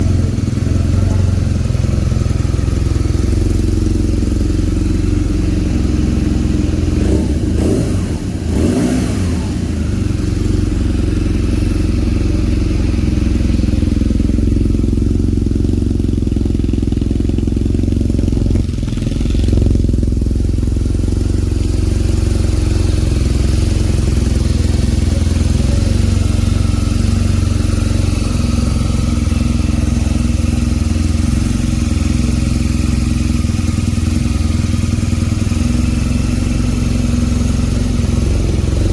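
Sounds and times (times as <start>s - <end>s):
motorcycle engine rumbling: 0.0s - 38.9s.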